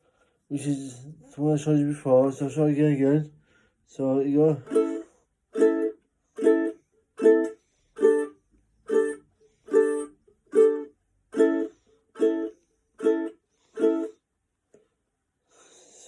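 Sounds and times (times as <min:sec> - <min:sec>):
ukulele chord strums: 0:04.6 - 0:08.3, 0:08.9 - 0:14.1.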